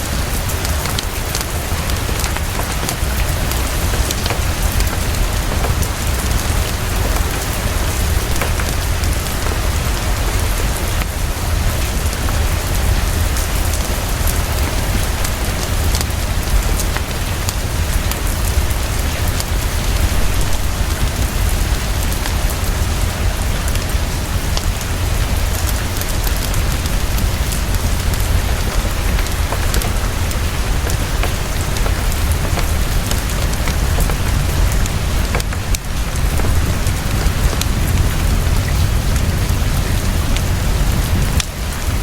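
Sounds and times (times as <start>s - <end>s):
heavy rainfall: 0.0s - 42.0s.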